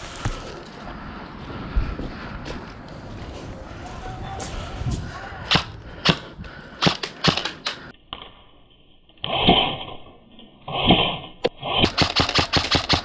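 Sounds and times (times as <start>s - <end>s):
airsoft guns firing: 5.5s - 7.9s, 11.8s - 13.0s.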